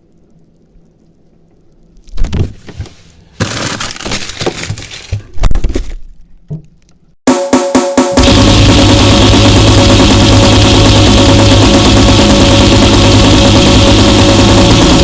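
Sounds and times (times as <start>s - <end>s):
loud music with drums: 7.3s - 15.0s
faint hum: 8.2s - 15.0s
harsh crashing and crackling: 8.2s - 15.0s.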